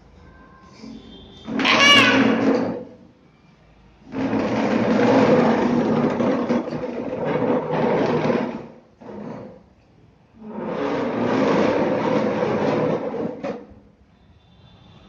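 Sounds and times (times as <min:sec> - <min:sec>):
child making rasping noise: 0:01.6 - 0:02.4.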